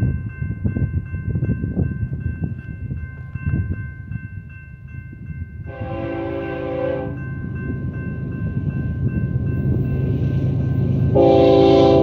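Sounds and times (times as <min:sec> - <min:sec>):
freight train rumbling: 0:00.0 - 0:12.0
locomotive horn blast: 0:05.7 - 0:07.2, 0:11.1 - 0:12.0.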